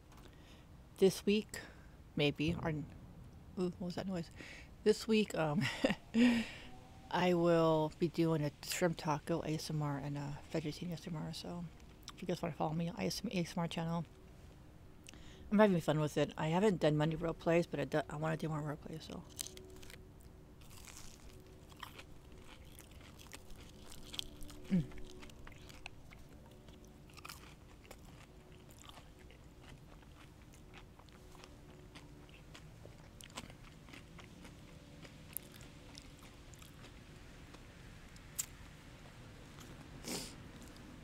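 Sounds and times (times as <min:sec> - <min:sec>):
faint steady hum: 0:00.0 - 0:41.0
chewing and crunching: 0:09.0 - 0:12.5, 0:17.8 - 0:41.0.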